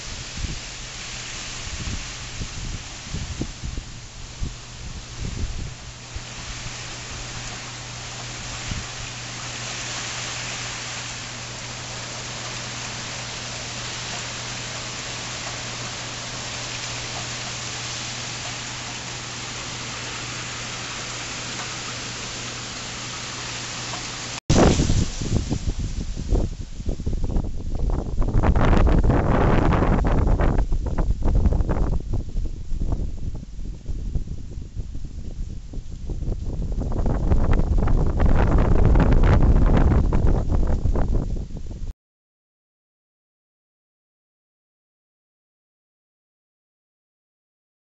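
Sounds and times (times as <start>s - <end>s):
wind buffeting microphone: 0.0s - 7.6s, 24.5s - 41.9s
steady rain hissing: 0.0s - 41.9s.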